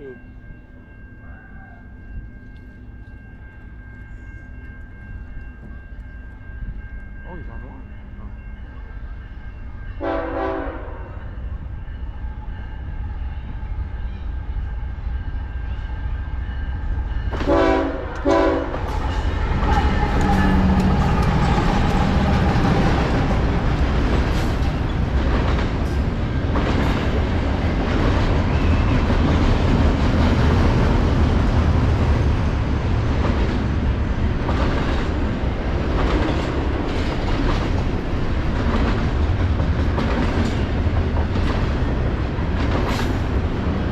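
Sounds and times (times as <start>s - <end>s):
train passing rumble: 0.0s - 43.9s
locomotive air horn blasts: 10.0s - 11.2s, 17.5s - 18.8s
wheels clacking on rail joints: 18.2s - 43.9s.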